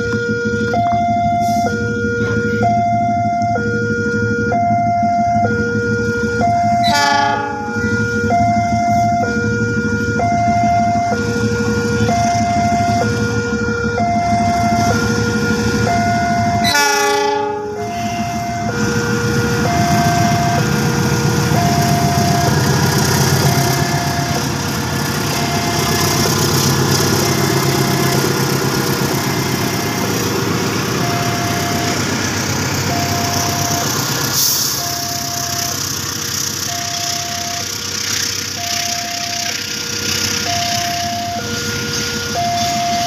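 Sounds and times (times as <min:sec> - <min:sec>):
level crossing alarm two tones: 0:00.0 - 0:24.6, 0:25.2 - 0:28.4, 0:29.1 - 0:30.2, 0:31.0 - 0:32.1, 0:32.9 - 0:34.0, 0:34.8 - 0:35.8, 0:36.6 - 0:37.7, 0:38.6 - 0:39.8, 0:40.4 - 0:43.0
freight train rumbling past: 0:00.0 - 0:43.0
train horn blast: 0:06.7 - 0:08.3, 0:16.3 - 0:20.3.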